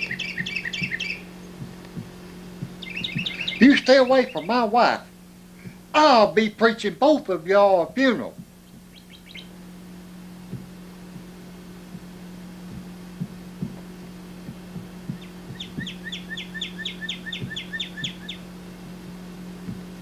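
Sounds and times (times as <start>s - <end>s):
songbird chirping: 0.0s - 2.0s, 2.8s - 5.1s, 8.6s - 9.6s, 15.1s - 18.5s
soft irregular thumps: 0.0s - 6.0s, 8.3s - 9.6s, 10.2s - 20.0s
steady low hum: 0.0s - 20.0s.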